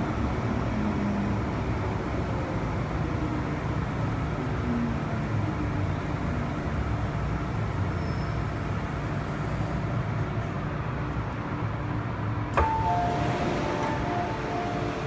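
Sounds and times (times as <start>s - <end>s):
train low rumble: 8.5s - 15.0s
two-tone beeping: 12.6s - 15.0s.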